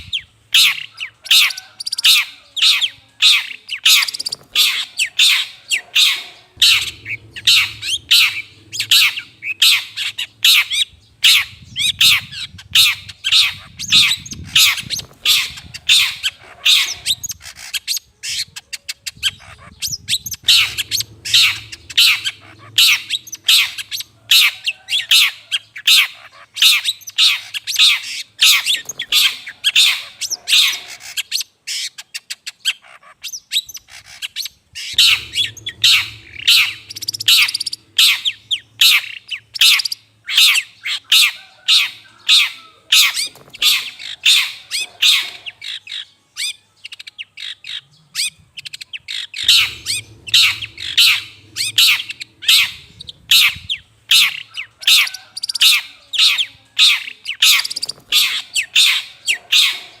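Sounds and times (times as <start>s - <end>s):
shrike harsh scratchy calls: 3.3s - 12.2s, 20.2s - 31.2s, 34.8s - 40.6s, 49.3s - 55.8s.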